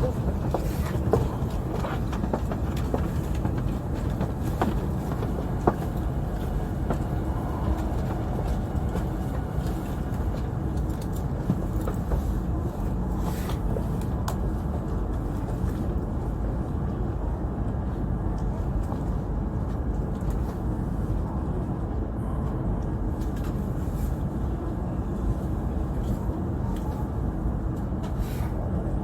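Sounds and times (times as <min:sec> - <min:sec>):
train cabin rumble: 0:00.0 - 0:29.0.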